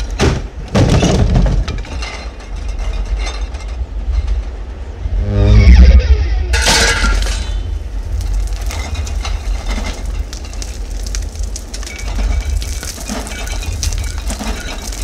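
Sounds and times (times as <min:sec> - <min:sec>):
debris and glass tinkling: 0:00.0 - 0:04.7, 0:06.6 - 0:15.0
heavy low rumble: 0:01.7 - 0:15.0
glass shattering: 0:06.6 - 0:15.0.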